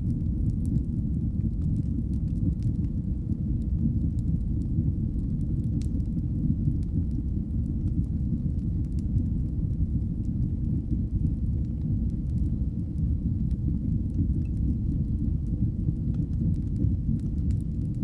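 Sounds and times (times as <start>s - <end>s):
fire crackling: 0.0s - 18.0s
fire rumbling: 0.0s - 18.0s.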